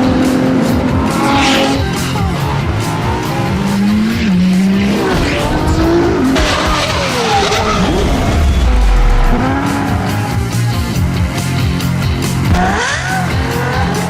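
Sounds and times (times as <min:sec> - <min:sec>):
background music: 0:00.0 - 0:14.0
car engine revving: 0:00.0 - 0:14.0
deep low rumble: 0:03.4 - 0:09.5.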